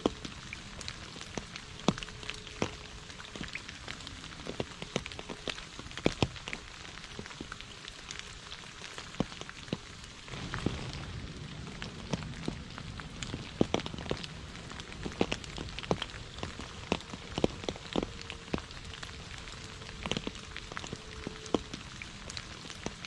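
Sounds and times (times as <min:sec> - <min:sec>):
rain on puddle and leaves: 0:00.0 - 0:23.0
low rumble: 0:10.3 - 0:22.4.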